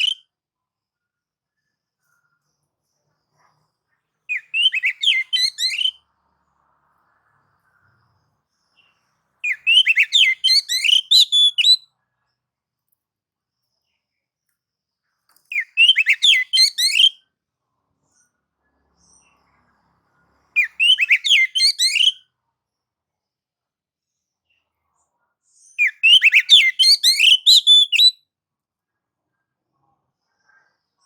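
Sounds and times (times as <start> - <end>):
bird whistling song: 0.0 - 0.2, 4.3 - 6.0, 9.4 - 11.9, 15.5 - 17.2, 20.6 - 22.2, 25.8 - 28.2.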